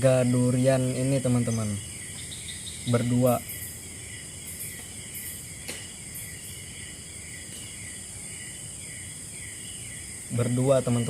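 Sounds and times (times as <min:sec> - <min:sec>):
falling insect chirp: 0:00.0 - 0:11.0
insect drone: 0:00.0 - 0:11.0.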